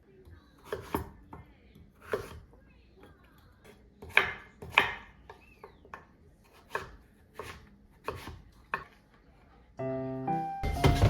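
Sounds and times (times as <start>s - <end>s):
knife chopping on cutting board: 0.6s - 2.5s, 4.0s - 9.0s.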